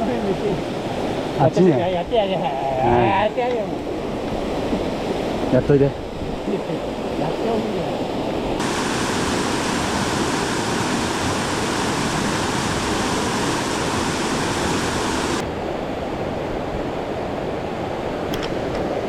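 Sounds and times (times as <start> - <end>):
mountain stream rushing: 4.0 - 19.0.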